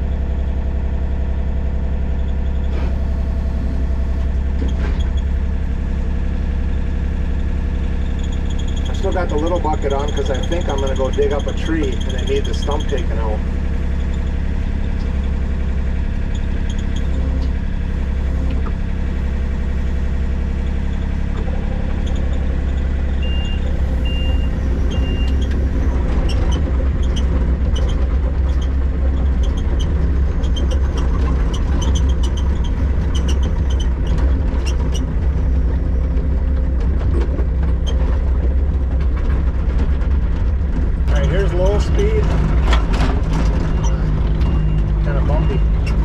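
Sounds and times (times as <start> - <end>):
diesel engine running: 0.0 - 46.0
tracks clanking and squeaking: 1.4 - 46.0
short beeps: 23.2 - 25.4, 43.6 - 45.8.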